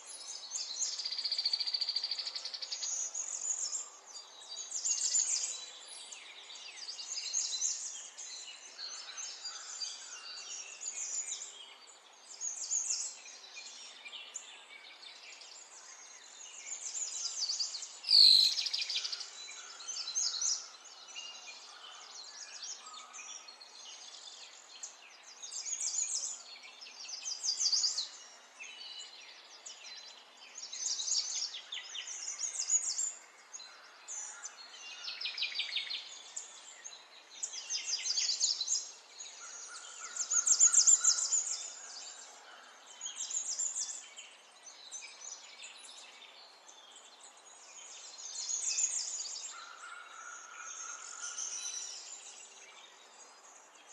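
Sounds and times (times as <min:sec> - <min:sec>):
faint outdoor hiss: 0:00.0 - 0:53.9.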